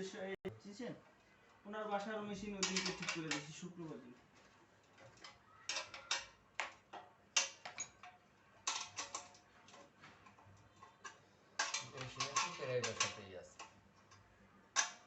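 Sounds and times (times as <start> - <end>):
sewing machine parts clicking: 2.4 - 3.6, 4.8 - 15.0.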